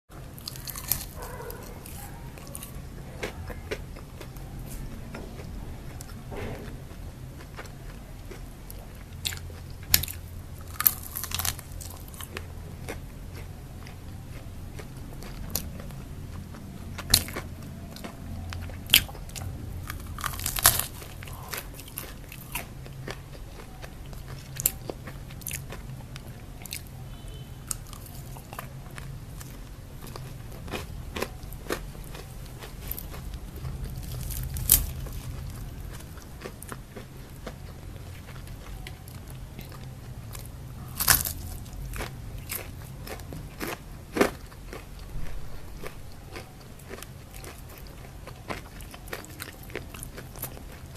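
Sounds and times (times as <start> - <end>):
crunchy chewing of fried chicken: 0.2 - 50.9.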